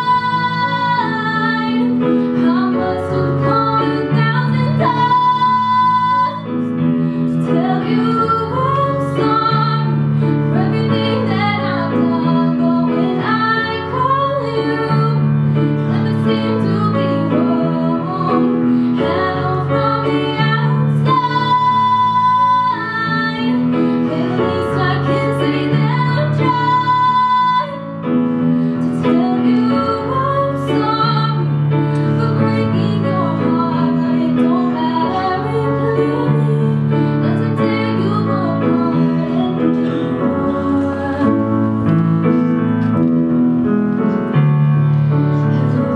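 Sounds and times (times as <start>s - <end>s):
woman singing: 0.0s - 6.7s, 7.3s - 27.9s, 28.8s - 41.8s
piano accompaniment: 0.0s - 45.9s.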